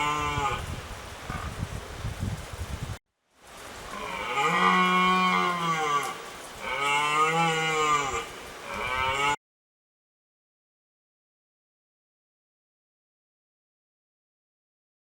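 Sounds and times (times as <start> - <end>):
cow mooing: 3.9 - 9.4.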